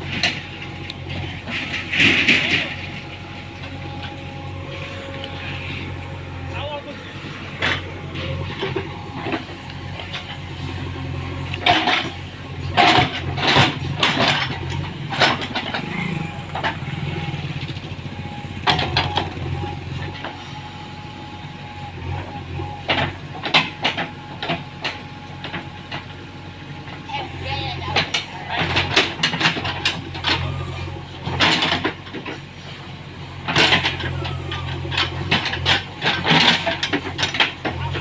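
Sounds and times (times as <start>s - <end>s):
tractor diesel engine droning: 0.0s - 38.0s
sharp knocks and clatter: 11.4s - 17.9s, 18.5s - 20.4s, 34.9s - 38.0s.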